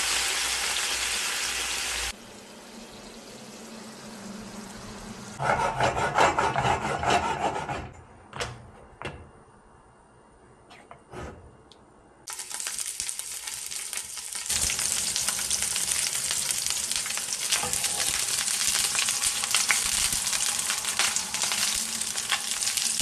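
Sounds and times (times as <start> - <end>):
food sizzling in hot oil: 0.0 - 5.4, 12.3 - 23.0.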